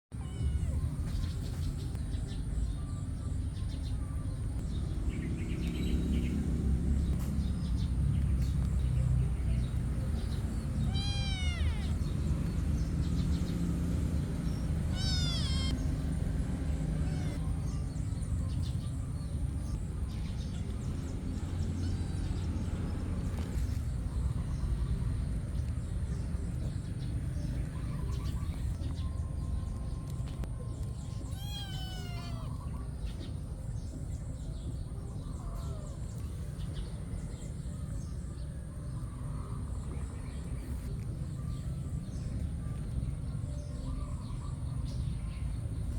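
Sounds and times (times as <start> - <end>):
cats meowing: 0.1 - 1.5, 10.2 - 13.6, 14.4 - 17.8, 31.2 - 33.1, 35.3 - 36.2.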